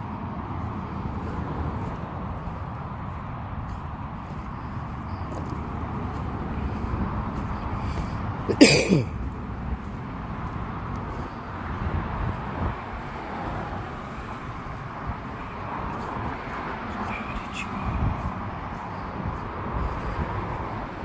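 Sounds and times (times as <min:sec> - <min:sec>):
outdoor background rumble: 0:00.0 - 0:21.0.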